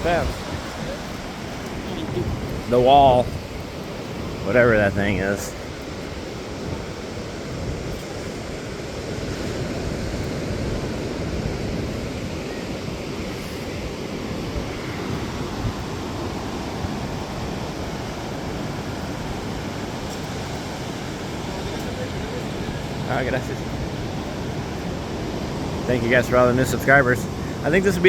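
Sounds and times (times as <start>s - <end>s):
ocean surf breaking: 0.0s - 28.0s
wind rumbling on microphone: 0.0s - 28.0s.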